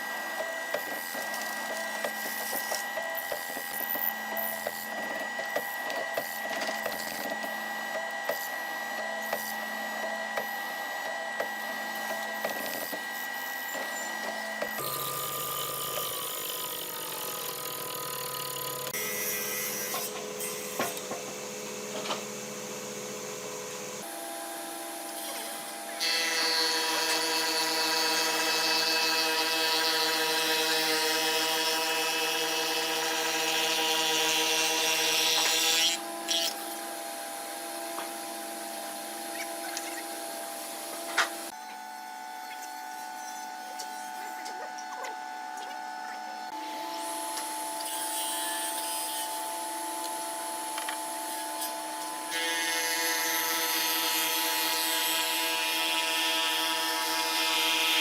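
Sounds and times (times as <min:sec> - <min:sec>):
power tool running: 0:00.0 - 0:58.0.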